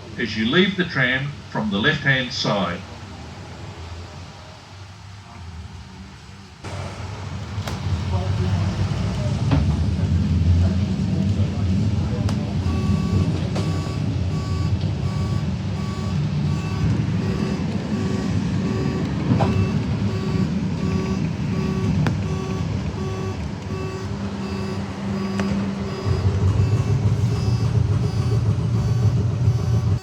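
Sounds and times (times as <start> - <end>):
tram rumbling: 0.0 - 30.0
electronic warning beeps: 8.0 - 9.8, 12.0 - 30.0.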